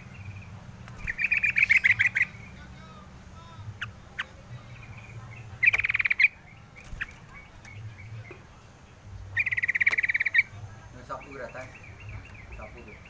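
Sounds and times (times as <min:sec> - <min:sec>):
bird rattling trill: 0:00.8 - 0:02.5, 0:05.6 - 0:07.8, 0:09.4 - 0:10.5.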